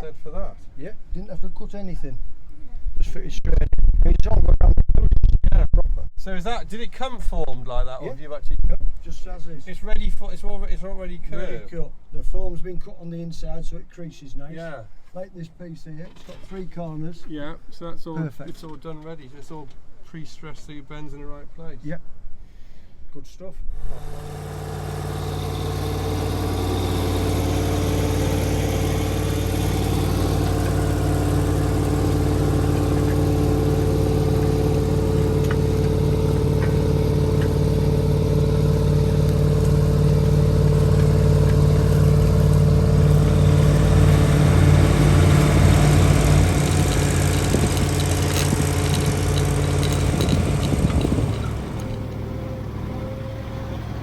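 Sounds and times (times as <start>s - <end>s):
diesel tractor engine running: 23.9s - 54.0s.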